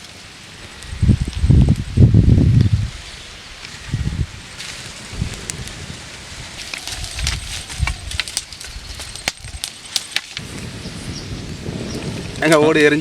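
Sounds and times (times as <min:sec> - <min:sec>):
wood fire crackling and popping: 0:00.0 - 0:13.0
handling rustling: 0:06.4 - 0:10.5.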